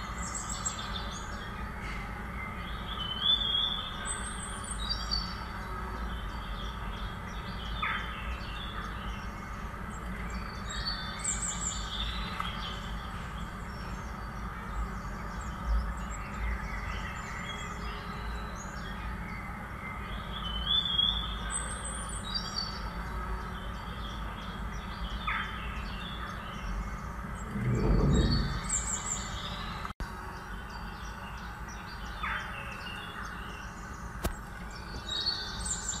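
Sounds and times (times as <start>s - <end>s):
brief low rumble: 27.4s - 29.5s.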